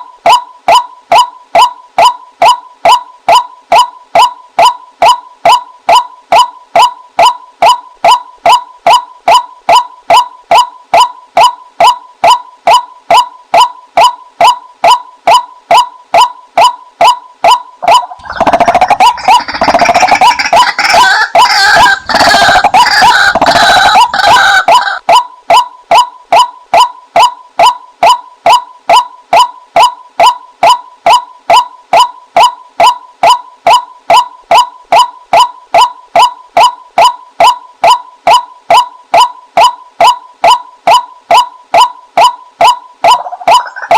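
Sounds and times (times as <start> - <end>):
waterhen short repeated calls: 12.7 - 25.7, 38.7 - 43.9
harsh fast chattering bird calls: 18.0 - 25.0.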